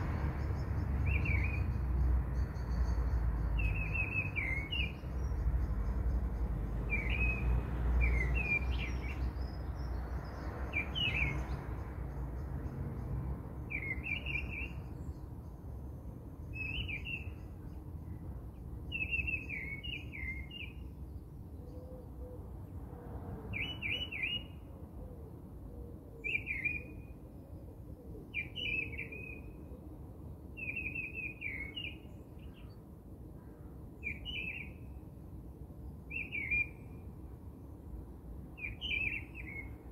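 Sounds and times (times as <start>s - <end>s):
small bird chirping: 0.0s - 12.8s.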